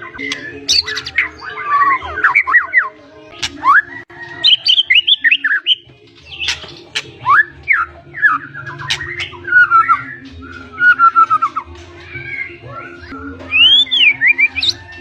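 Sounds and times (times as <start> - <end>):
bird singing whistled phrases: 0.0 - 6.6, 7.2 - 15.0
sharp clicking bird notes: 3.3 - 3.8, 4.6 - 7.2, 8.6 - 12.2.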